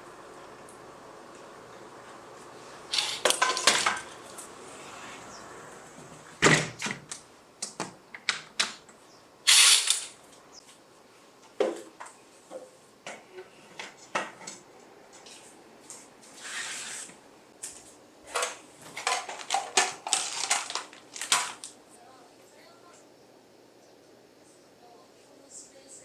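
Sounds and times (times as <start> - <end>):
scraping or rustling: 2.9 - 5.3, 18.3 - 21.7.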